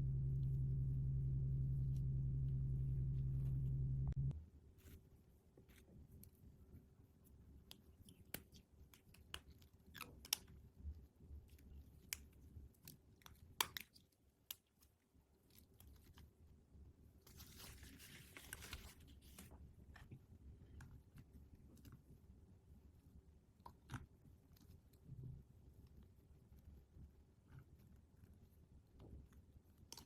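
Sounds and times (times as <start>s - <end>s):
packaging crinkling rustle: 17.3s - 19.6s.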